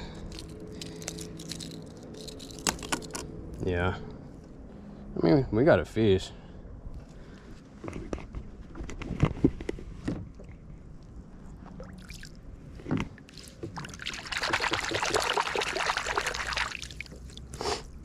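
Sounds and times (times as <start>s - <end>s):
water splashing and sloshing: 9.4s - 18.0s.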